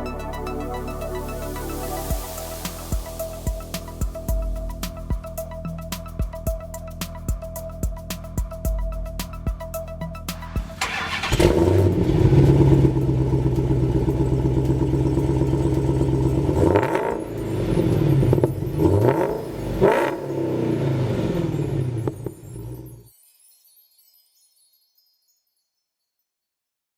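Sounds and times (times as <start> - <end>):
music: 0.0 - 20.8, 22.8 - 26.4
car engine revving: 10.4 - 22.1.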